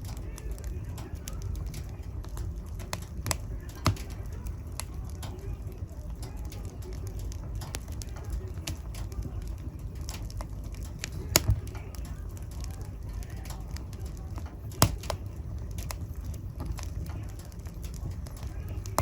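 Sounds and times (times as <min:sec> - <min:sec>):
fire burning rumble: 0:00.0 - 0:19.0
fire crackling: 0:00.0 - 0:19.0
sharp fire pops: 0:00.0 - 0:19.0.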